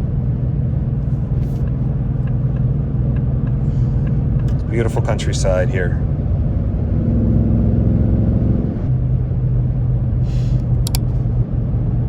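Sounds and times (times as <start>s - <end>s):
car engine droning in cabin: 0.0s - 12.0s
road rumble: 0.0s - 12.0s
sharp clicks: 10.7s - 11.2s.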